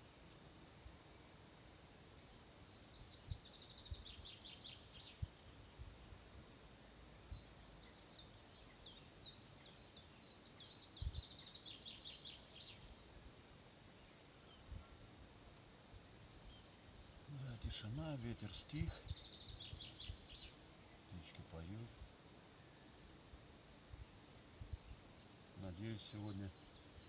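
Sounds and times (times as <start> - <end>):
songbird trilling: 16.5 - 22.4, 23.8 - 27.0.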